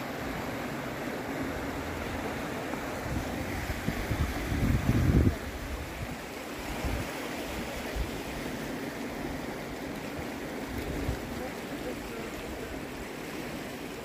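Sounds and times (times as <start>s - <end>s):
river rushing: 0.0s - 14.0s
wind buffeting microphone: 2.9s - 7.1s.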